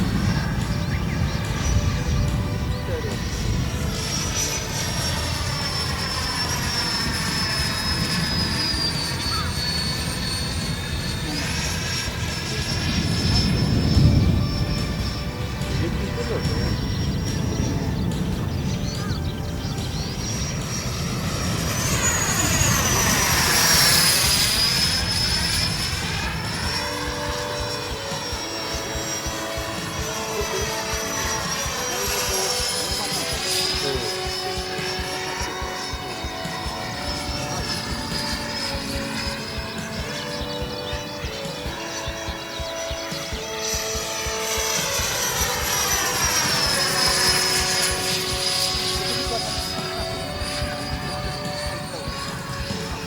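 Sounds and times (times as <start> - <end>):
electric ducted fan whine: 0.0 - 53.0
low rumbling noise: 0.0 - 53.0.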